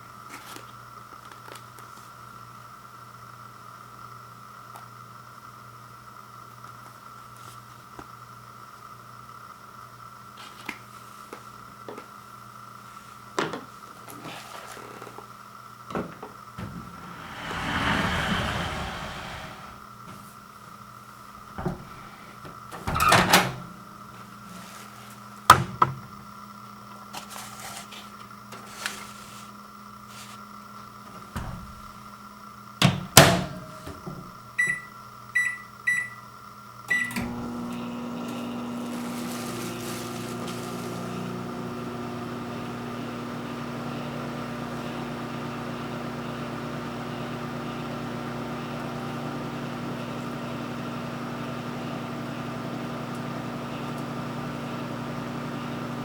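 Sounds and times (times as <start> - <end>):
microwave oven humming: 21.0 - 27.1, 29.7 - 56.0
microwave door shutting: 22.8 - 23.7.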